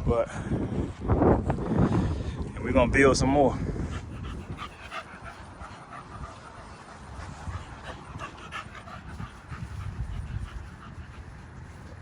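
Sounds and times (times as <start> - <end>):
dog panting: 3.7 - 12.0.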